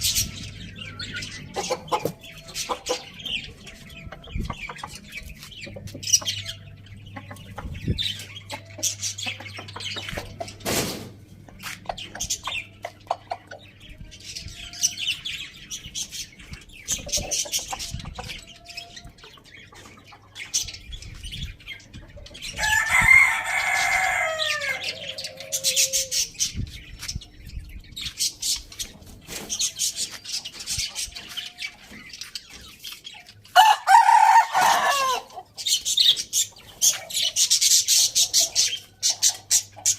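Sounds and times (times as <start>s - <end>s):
chickens clucking and chirping: 0.0s - 39.9s
rooster crowing: 22.6s - 26.0s, 33.6s - 35.3s.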